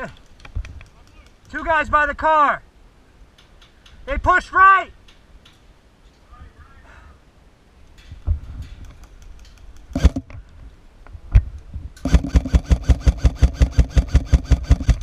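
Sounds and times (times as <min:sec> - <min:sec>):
airsoft rifle shots: 0:09.9 - 0:10.3, 0:12.0 - 0:15.0
gearbox motor whirring: 0:12.0 - 0:15.0.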